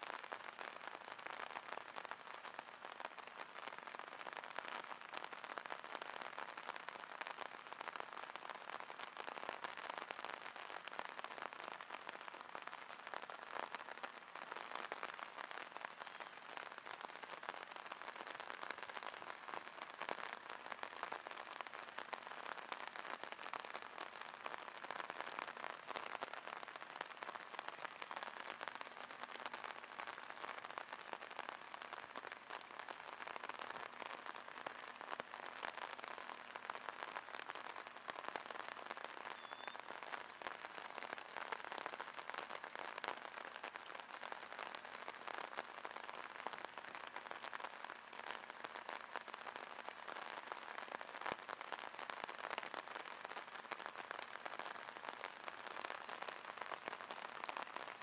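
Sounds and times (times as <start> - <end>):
rain falling on water: 0.0 - 58.0.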